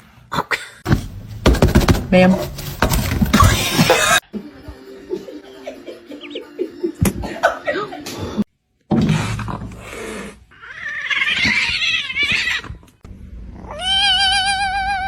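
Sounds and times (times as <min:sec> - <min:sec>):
cat yowling: 0:10.5 - 0:12.8, 0:13.6 - 0:15.0.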